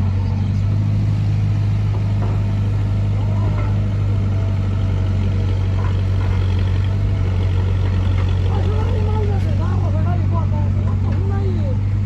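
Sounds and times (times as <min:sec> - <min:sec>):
tractor diesel engine droning: 0:00.0 - 0:12.0.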